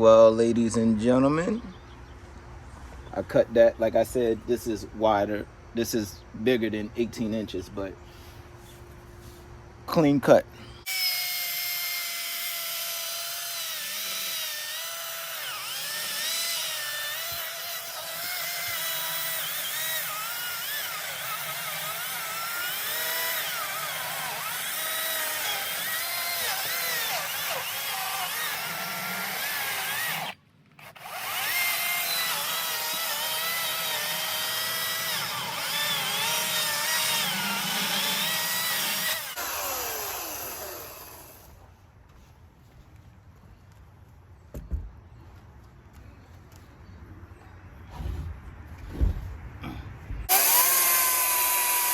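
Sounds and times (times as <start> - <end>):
electric chainsaw cutting log: 10.8 - 41.6, 50.3 - 51.9.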